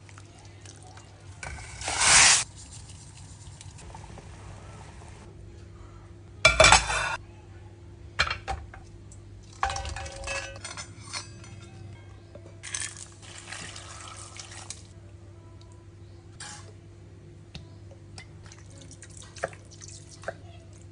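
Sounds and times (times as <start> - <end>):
dishes and utensils clattering: 6.5 - 7.2, 9.5 - 13.0.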